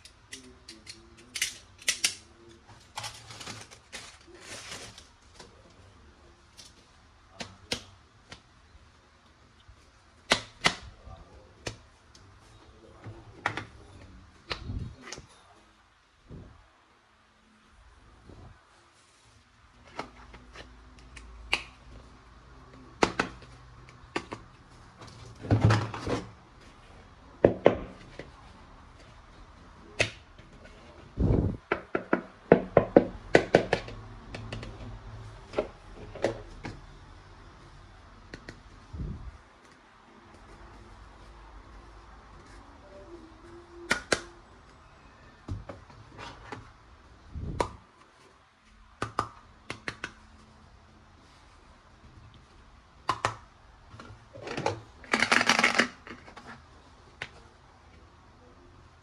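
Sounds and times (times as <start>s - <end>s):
plastic toy parts clicking: 0.0s - 2.2s, 55.0s - 56.2s
packaging crinkling and rattling: 2.8s - 5.3s
plastic toy parts thudding: 54.4s - 56.4s.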